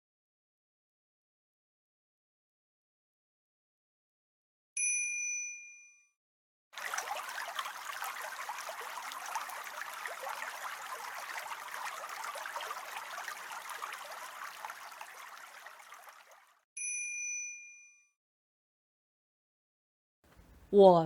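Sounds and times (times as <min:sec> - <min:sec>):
bright bell chime: 0:04.8 - 0:06.0, 0:16.8 - 0:18.1
crackling trickling noise: 0:06.8 - 0:16.6.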